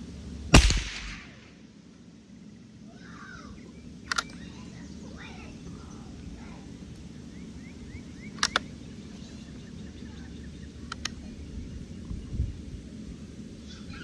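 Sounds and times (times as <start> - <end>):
low background noise: 0.0 - 14.0
rifle action clicking: 0.6 - 1.5, 8.4 - 8.7.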